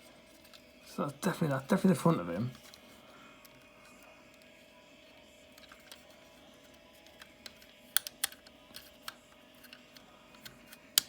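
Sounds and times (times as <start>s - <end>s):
plastic toy parts clicking: 7.1s - 11.0s.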